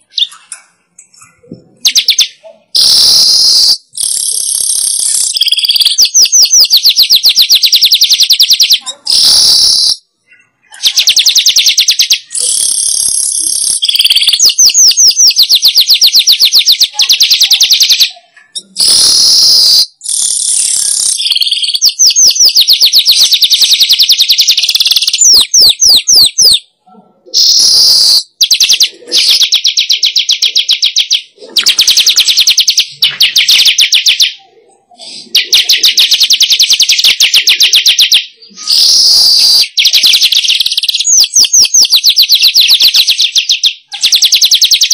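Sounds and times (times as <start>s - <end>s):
bird rattling chatter: 27.6s - 34.2s.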